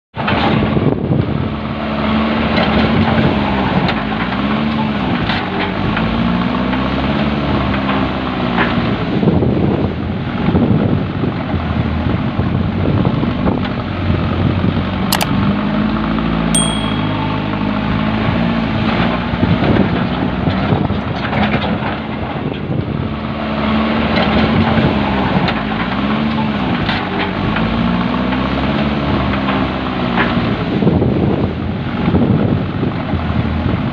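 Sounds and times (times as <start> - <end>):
sharp clicks: 15.1 - 15.4.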